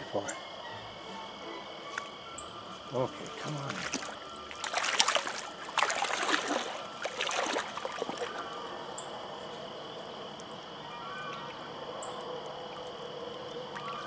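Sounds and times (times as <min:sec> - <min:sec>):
stream running: 0:00.0 - 0:14.0
fish thrashing and splashing water: 0:02.8 - 0:09.0.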